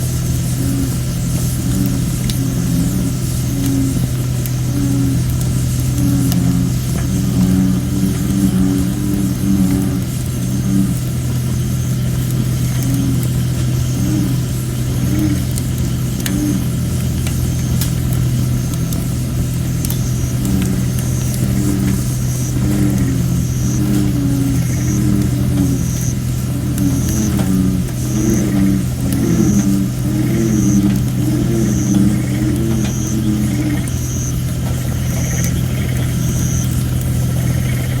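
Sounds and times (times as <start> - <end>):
bullfrogs calling: 0.0 - 38.0
campfire crackling and popping: 0.0 - 38.0.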